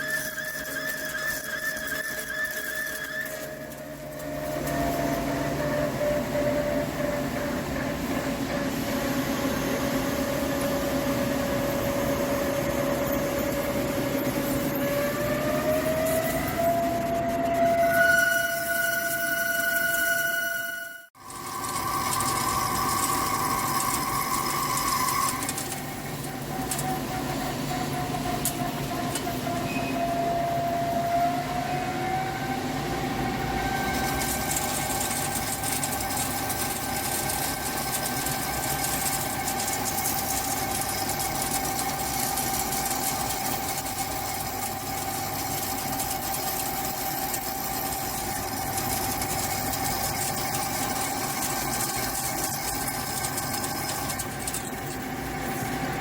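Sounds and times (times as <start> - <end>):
lathe spindle whine: 0.0 - 56.0
metal cutting noise: 0.0 - 56.0.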